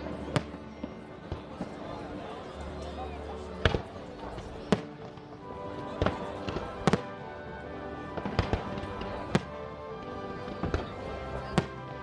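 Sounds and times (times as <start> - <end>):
music playing: 4.5 - 12.0.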